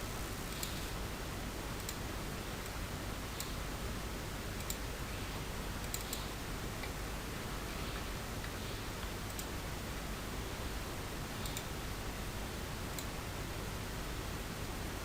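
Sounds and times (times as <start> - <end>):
microphone hiss: 0.0 - 15.0
computer mouse clicking: 1.8 - 2.0, 3.4 - 3.6, 4.6 - 4.8, 5.8 - 7.0, 8.4 - 9.5, 11.4 - 11.7.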